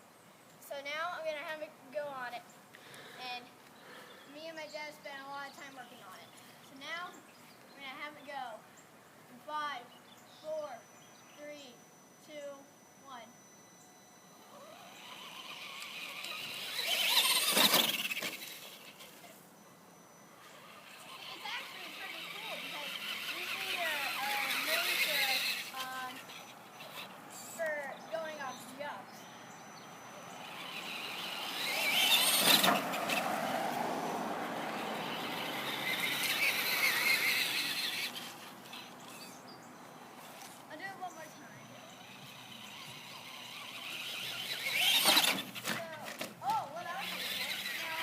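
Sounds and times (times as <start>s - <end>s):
electric toy truck motor whining: 11.8s - 48.0s.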